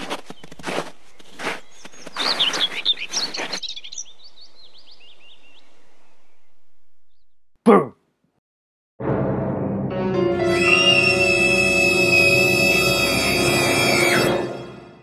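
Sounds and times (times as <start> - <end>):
birds tweeting: 0.0 - 7.5.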